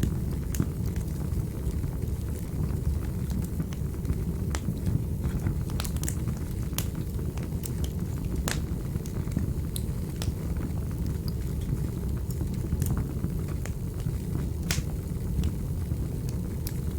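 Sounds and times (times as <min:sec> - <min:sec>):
crackles and pops of burning logs: 0:00.0 - 0:16.9
fire flames roaring: 0:00.0 - 0:16.9.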